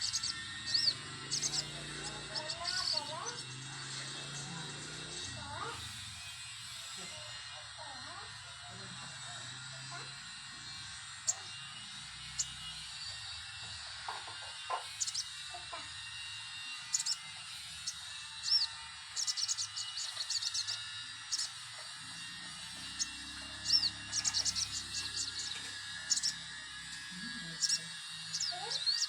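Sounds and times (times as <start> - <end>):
bird chirping: 0.0 - 4.6, 14.8 - 15.5, 16.9 - 21.6, 22.2 - 29.0.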